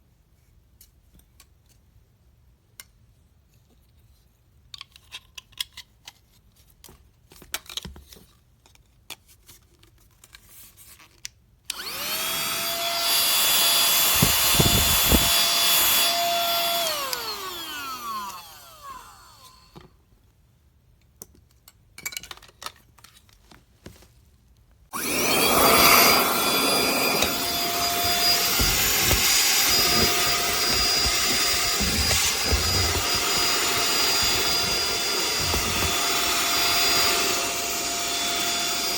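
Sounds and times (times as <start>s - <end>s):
handheld vacuum motor whining: 11.7s - 19.9s, 24.9s - 38.9s.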